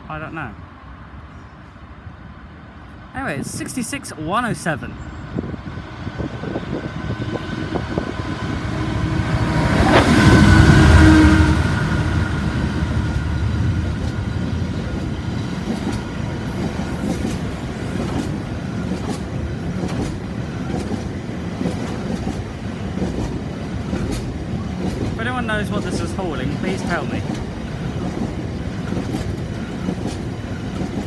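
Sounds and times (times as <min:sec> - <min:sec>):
diesel locomotive engine: 0:00.0 - 0:31.0
wheels clicking over rail joints: 0:13.1 - 0:31.0.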